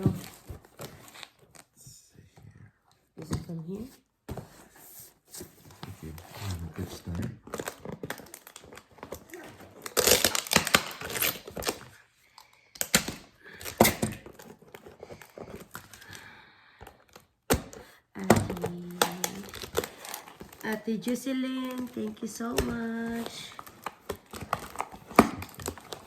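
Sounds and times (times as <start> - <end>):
cardboard ripping and crinkling: 5.4 - 12.0, 18.5 - 20.8, 21.4 - 26.0.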